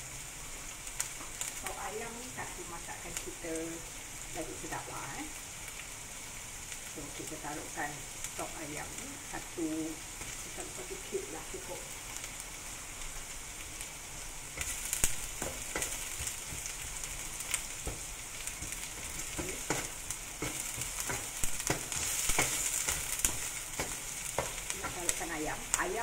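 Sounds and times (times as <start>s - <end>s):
onion sizzling in hot oil: 0.0s - 26.0s
spatula scraping and tapping pan: 14.6s - 25.4s.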